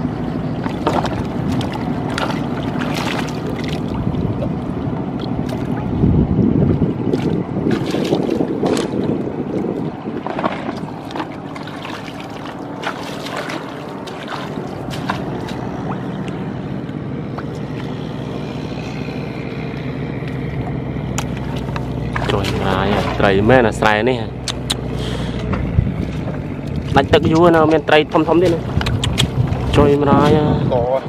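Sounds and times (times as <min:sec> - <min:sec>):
tractor engine running: 0:00.0 - 0:31.0
sharp clicks: 0:24.4 - 0:24.9, 0:28.8 - 0:29.4.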